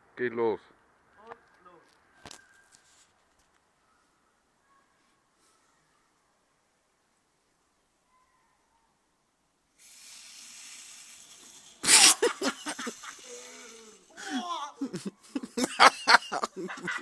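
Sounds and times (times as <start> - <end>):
vacuum cleaner hiss: 9.8 - 14.4
people laughing: 11.8 - 17.0
people exclaiming: 11.9 - 15.1.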